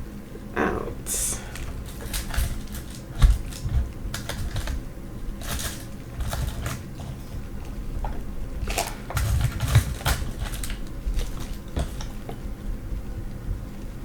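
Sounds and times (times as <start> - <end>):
items handled on a tabletop: 1.5 - 4.8, 5.4 - 12.4.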